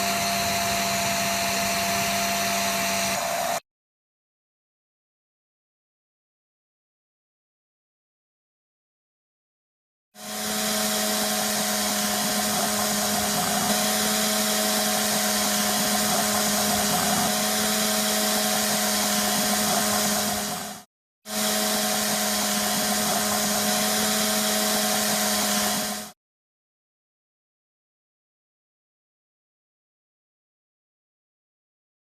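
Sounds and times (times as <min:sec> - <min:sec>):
electric power tool motor: 0:00.0 - 0:03.6, 0:10.2 - 0:26.2.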